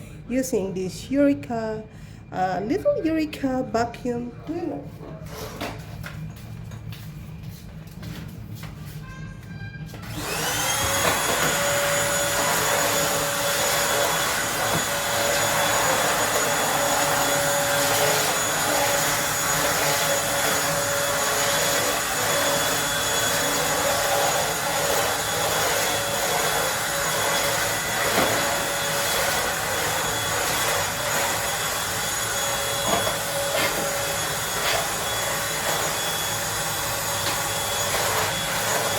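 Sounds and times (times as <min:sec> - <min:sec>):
vacuum cleaner motor whine: 0:09.4 - 0:38.9.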